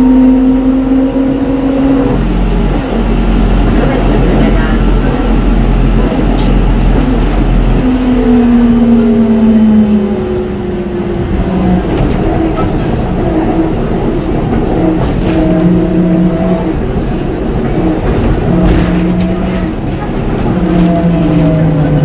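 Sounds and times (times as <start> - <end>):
road noise rumble: 0.0 - 22.0
bus body rattle: 2.2 - 8.7, 11.3 - 22.0.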